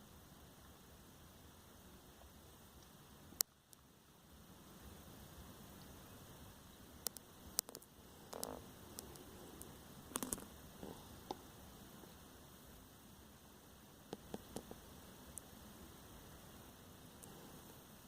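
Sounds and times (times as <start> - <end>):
faint steady hiss and hum: 0.0 - 18.0
small clicks and taps: 7.0 - 10.5, 14.1 - 15.5.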